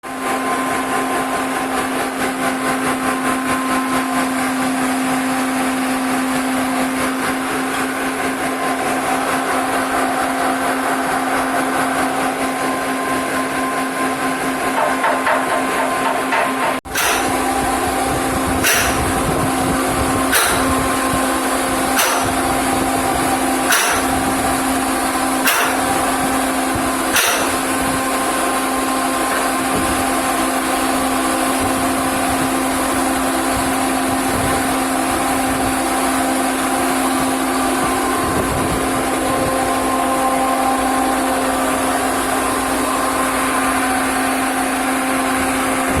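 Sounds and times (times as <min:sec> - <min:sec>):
industrial machinery humming: 0:00.0 - 0:46.0
sharp knocks: 0:14.8 - 0:17.5, 0:18.6 - 0:19.3, 0:20.3 - 0:20.9, 0:22.0 - 0:22.5, 0:23.7 - 0:24.2, 0:25.4 - 0:26.0, 0:27.1 - 0:27.8.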